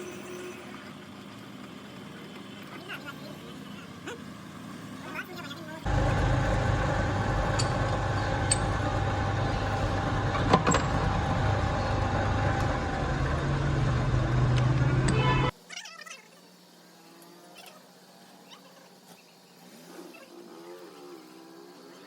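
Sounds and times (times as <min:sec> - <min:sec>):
workshop machine humming: 0:05.8 - 0:15.5.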